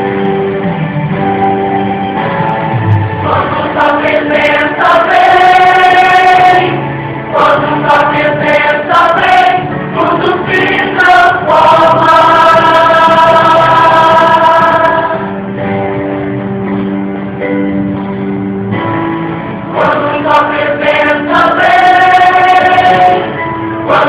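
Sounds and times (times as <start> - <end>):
choir singing gospel song: 3.2 - 15.9, 19.6 - 24.0.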